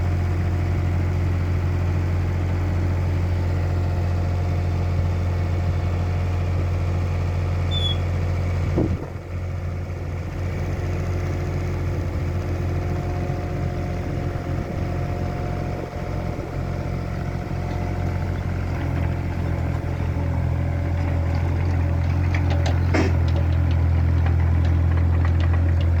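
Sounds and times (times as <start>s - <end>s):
vehicle engine running at low revs: 7.6s - 26.0s.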